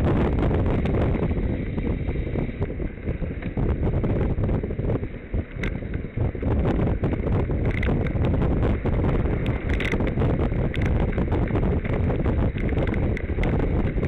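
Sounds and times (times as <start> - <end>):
wind buffeting microphone: 0.0 - 14.0
small clicks: 7.6 - 8.2, 9.4 - 13.9.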